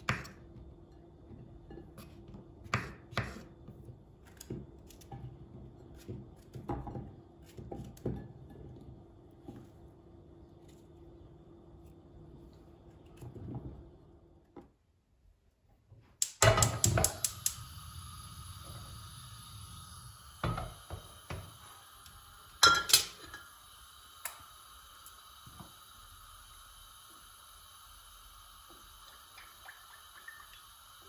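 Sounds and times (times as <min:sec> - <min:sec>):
steady hiss: 0:16.3 - 0:31.0.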